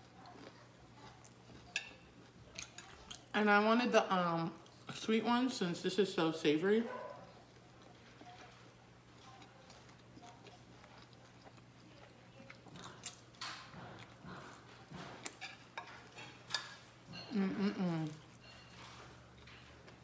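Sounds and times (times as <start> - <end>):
person humming: 17.3 - 18.2.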